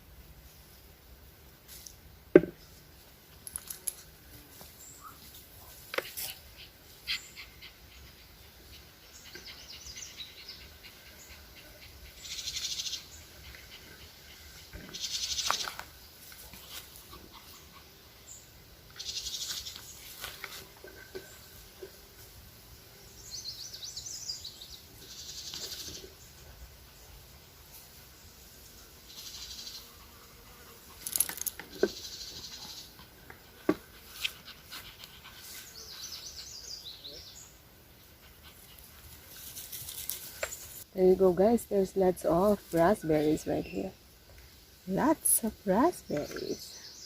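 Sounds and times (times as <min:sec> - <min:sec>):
rustling in bushes: 0:14.3 - 0:24.1, 0:33.9 - 0:47.0.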